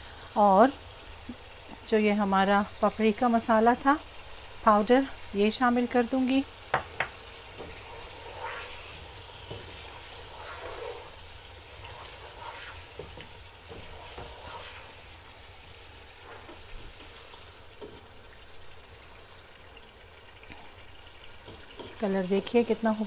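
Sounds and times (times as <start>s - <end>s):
food sizzling in hot oil: 0.0s - 23.0s
spoon tapping on pot: 6.7s - 7.8s.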